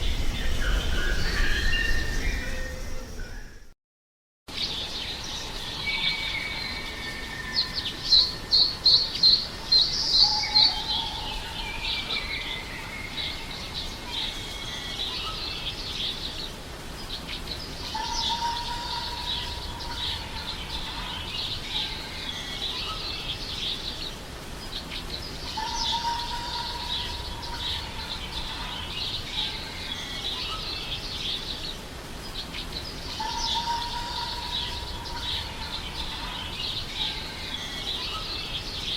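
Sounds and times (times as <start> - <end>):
birds chirping: 0.0 - 3.7, 4.5 - 38.9
long whistled bird notes: 0.0 - 3.7.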